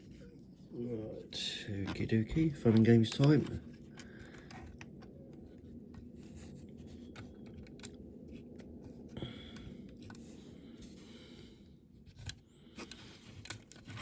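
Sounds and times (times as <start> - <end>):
faint low hum: 0.0 - 14.0
model car parts clicking: 2.7 - 5.0.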